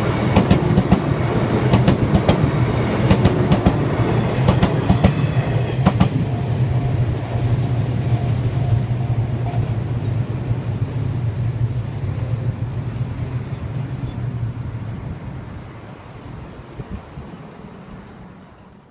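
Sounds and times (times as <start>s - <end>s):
train wheel clacks: 0.0s - 6.8s
train low rumble: 0.0s - 18.9s.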